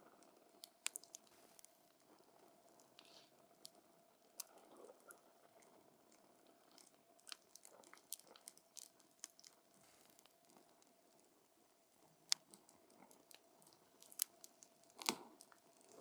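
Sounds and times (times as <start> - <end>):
campfire crackling and popping: 0.7 - 1.7.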